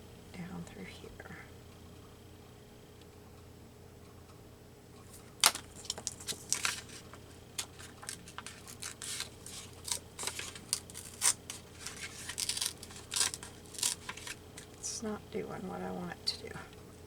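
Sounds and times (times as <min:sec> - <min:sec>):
paper tearing: 0:05.4 - 0:14.8.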